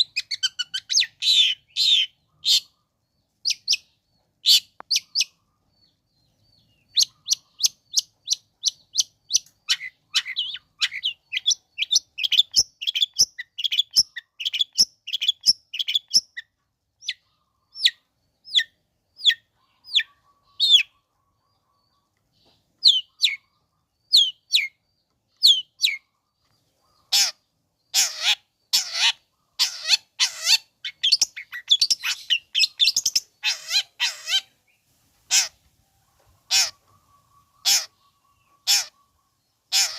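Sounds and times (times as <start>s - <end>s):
bird harsh rasping calls: 0.0s - 5.4s, 6.9s - 16.4s, 26.9s - 34.6s, 35.2s - 35.7s, 36.4s - 39.9s
bird high sharp chirps: 0.0s - 5.4s, 6.6s - 21.1s, 21.9s - 26.1s, 26.9s - 35.6s, 36.4s - 39.9s.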